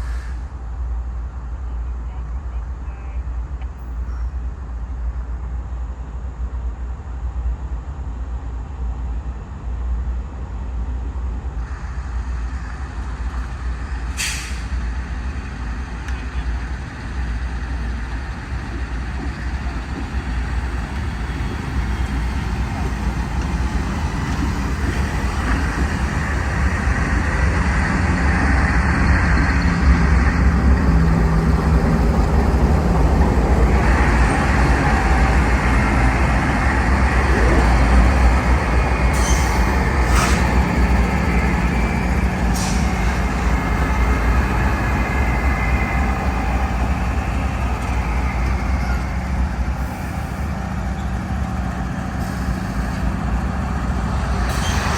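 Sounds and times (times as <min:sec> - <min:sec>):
vehicle rumble: 0:18.0 - 0:54.9.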